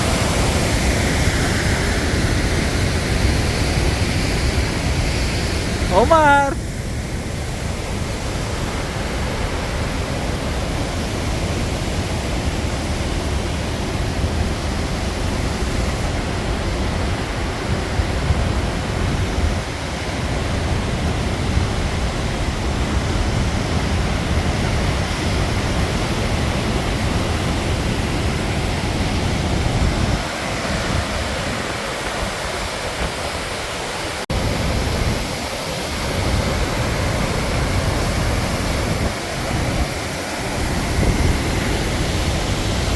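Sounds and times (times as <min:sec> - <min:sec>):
waterfall rushing: 0:05.8 - 0:06.6.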